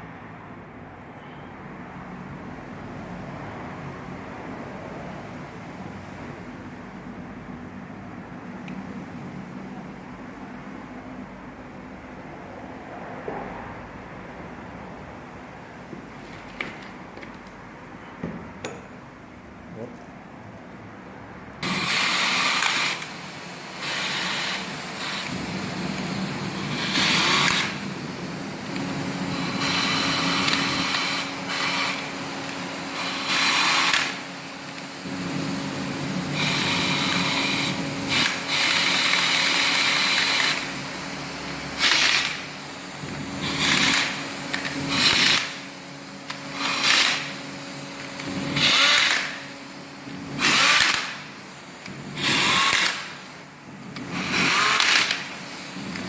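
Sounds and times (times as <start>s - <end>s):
handheld power tool bursts: 21.6s - 56.0s.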